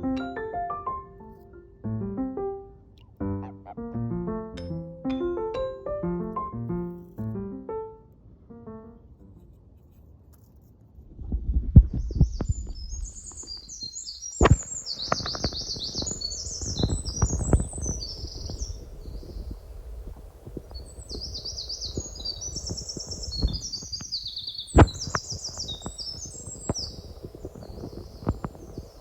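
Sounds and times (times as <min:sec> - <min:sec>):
songbird singing: 0:12.0 - 0:29.0.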